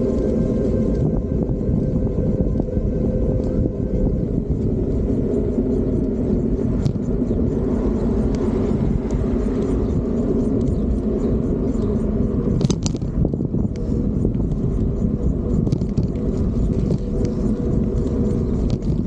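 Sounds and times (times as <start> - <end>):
road and wind noise: 0.0 - 19.0
sharp rattles: 4.8 - 19.0.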